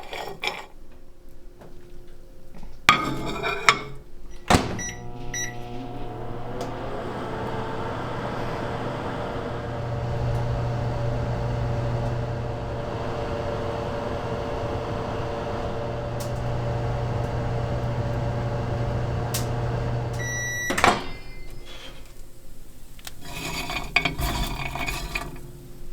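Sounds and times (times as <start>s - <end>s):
microwave beep: 4.3s - 21.7s
microwave oven humming: 4.4s - 21.8s.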